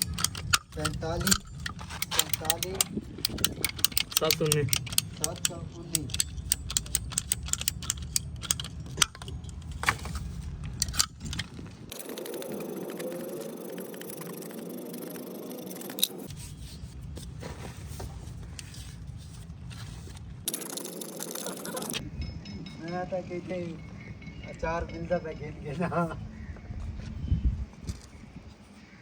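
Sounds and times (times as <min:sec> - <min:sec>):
metallic clicking and scraping of pipe: 0:00.0 - 0:16.9.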